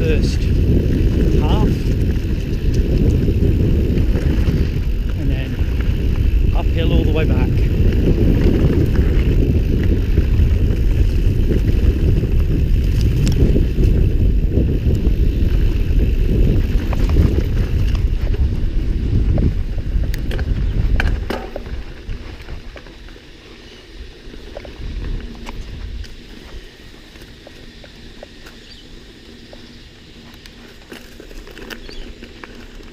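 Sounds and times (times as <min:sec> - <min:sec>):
wind rushing over microphone: 0:00.0 - 0:30.6
bike clicks and rattles: 0:00.0 - 0:32.9
bike tyres rolling on dirt: 0:00.0 - 0:32.9.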